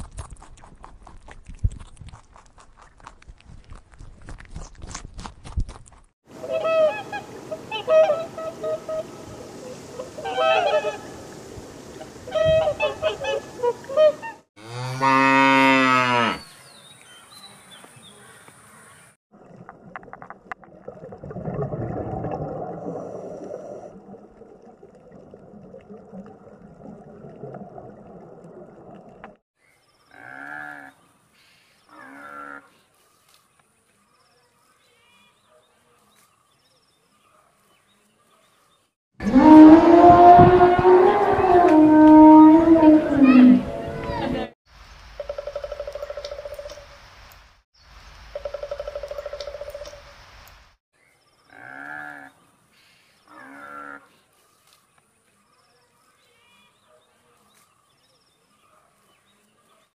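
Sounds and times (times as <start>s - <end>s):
loud animal call: 10.0s - 11.1s
cow mooing: 14.6s - 16.5s, 30.1s - 30.9s, 32.0s - 32.7s, 53.4s - 54.0s.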